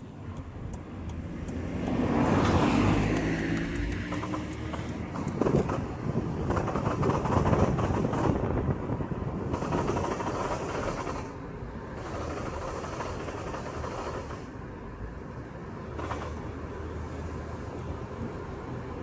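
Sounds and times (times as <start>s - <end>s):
minivan driving: 0.0s - 19.0s
rapid knocking noise: 3.1s - 8.4s, 9.5s - 11.4s, 12.0s - 14.4s.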